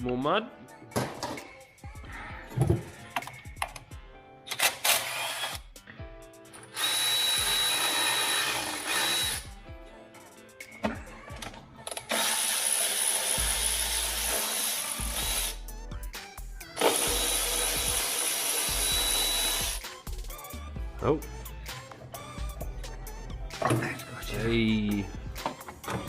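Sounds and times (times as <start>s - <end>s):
power drill whirring: 4.5s - 5.7s, 6.6s - 9.5s, 12.0s - 15.6s, 16.8s - 19.8s.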